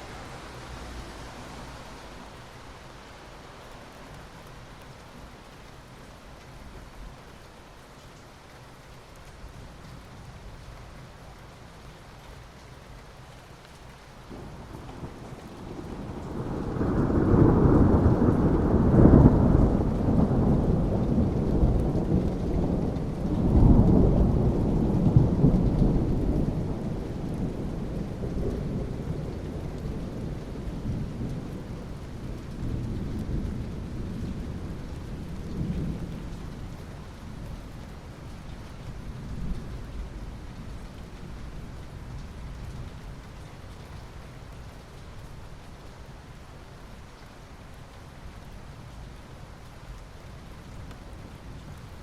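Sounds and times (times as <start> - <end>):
steady rain: 0.0 - 52.0
thunder rolling: 14.3 - 31.7.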